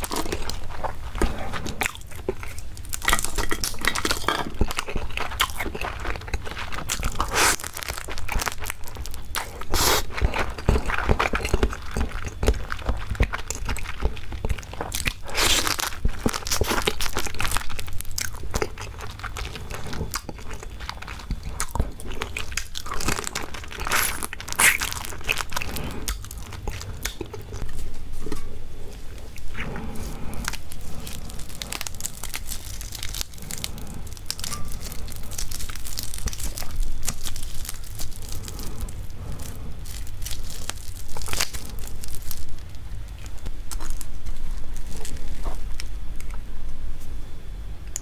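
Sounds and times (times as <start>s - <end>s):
wet biting sucking and chewing: 0.0s - 8.5s, 9.3s - 17.5s
crab shell cracking and crunching: 0.0s - 27.8s, 29.7s - 46.4s
steady low hum: 0.0s - 48.0s.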